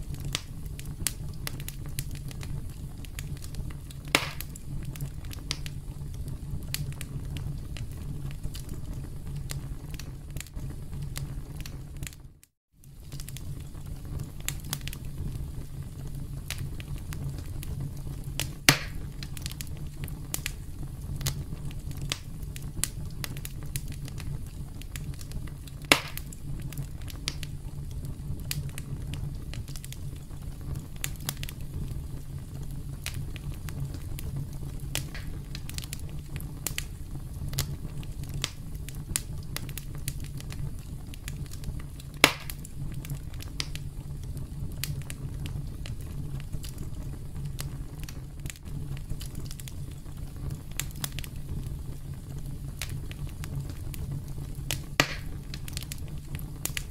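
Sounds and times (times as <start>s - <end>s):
campfire crackling: 0.0s - 56.9s.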